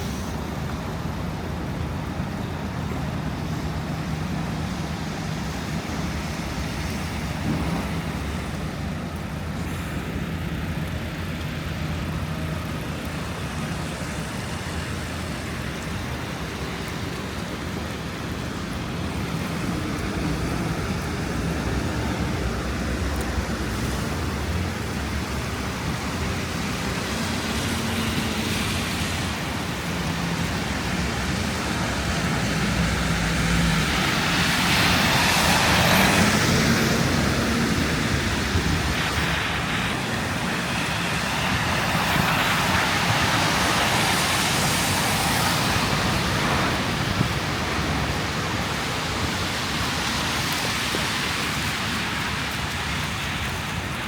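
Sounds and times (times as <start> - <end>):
passing traffic: 0.0 - 54.0.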